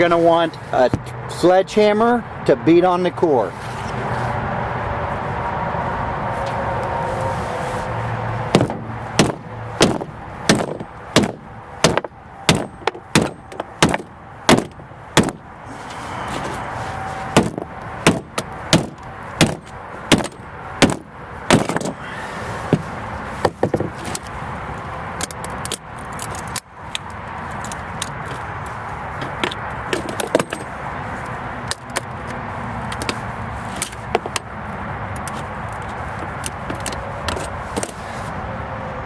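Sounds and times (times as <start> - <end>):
sledgehammer hitting steel: 8.5 - 15.5, 17.3 - 22.0.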